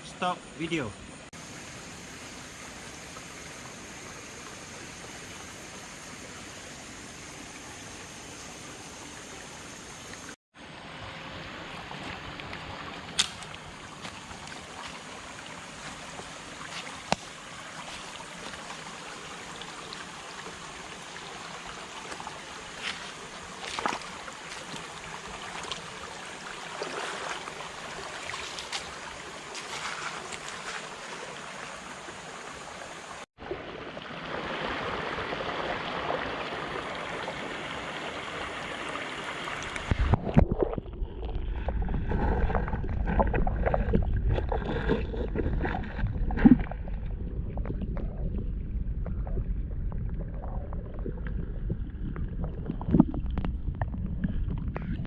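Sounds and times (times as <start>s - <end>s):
stream water rushing: 8.8s - 40.4s
small splashes and clicks: 22.8s - 24.9s, 25.5s - 25.9s, 28.2s - 30.8s.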